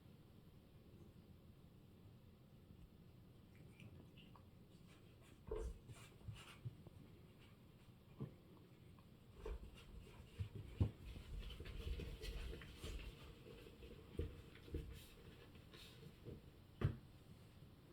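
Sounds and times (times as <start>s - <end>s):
cat scratching and pawing: 3.6s - 16.6s.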